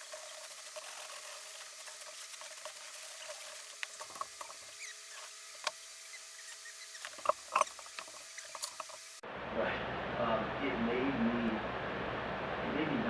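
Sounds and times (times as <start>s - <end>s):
faint steady hum: 3.3s - 13.0s.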